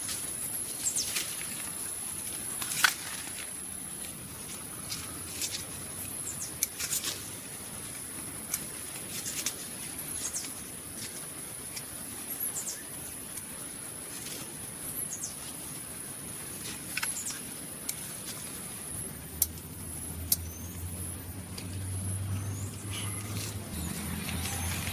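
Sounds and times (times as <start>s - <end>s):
rustling of leafy vines: 0.0s - 19.4s, 20.0s - 24.9s.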